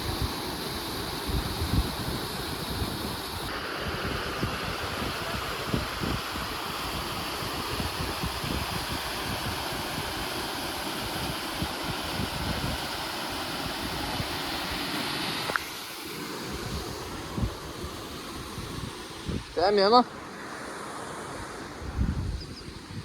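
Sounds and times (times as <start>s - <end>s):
wind buffeting microphone: 0.0s - 10.4s, 11.0s - 13.1s, 16.3s - 19.7s, 21.6s - 23.0s
steady rushing noise: 0.0s - 22.3s.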